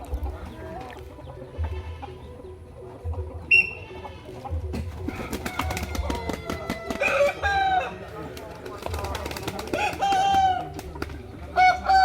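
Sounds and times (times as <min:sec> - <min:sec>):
roosters crowing: 0:05.0 - 0:08.2, 0:09.7 - 0:10.9, 0:11.6 - 0:12.0.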